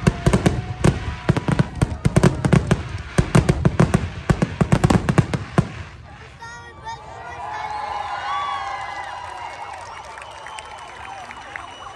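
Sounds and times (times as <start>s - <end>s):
fireworks bangs and crackles: 0.0s - 6.9s.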